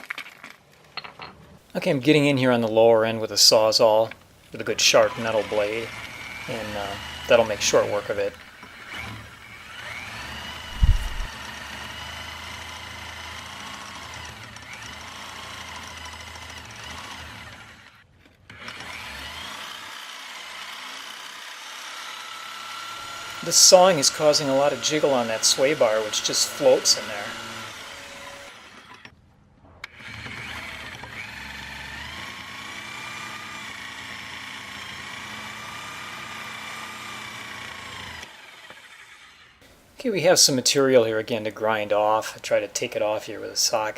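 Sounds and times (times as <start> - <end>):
reciprocating saw cutting metal: 4.6 - 29.1, 29.8 - 39.6.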